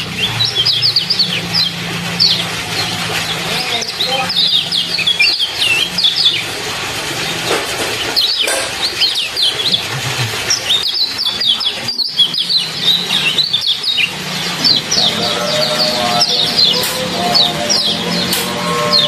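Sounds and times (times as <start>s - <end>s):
trickling water: 0.0s - 19.0s
songbird chirping: 10.5s - 19.0s.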